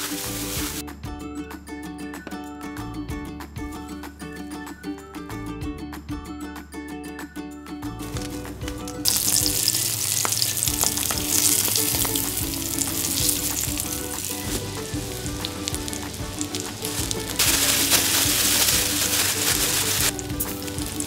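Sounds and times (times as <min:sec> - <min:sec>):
fish sizzling in hot oil: 0:00.0 - 0:00.8, 0:09.0 - 0:21.0.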